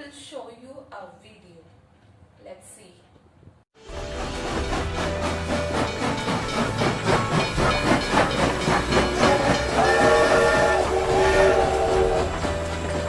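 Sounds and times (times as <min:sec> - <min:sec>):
train wheels clattering: 0:03.8 - 0:13.0
train whistle: 0:07.1 - 0:13.0.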